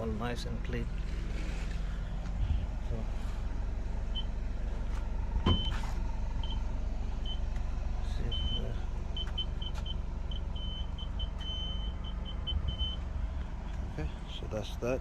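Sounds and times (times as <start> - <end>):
car engine idling: 0.0 - 15.0
parking sensor beeping: 4.1 - 4.4, 5.4 - 7.5, 8.1 - 13.1.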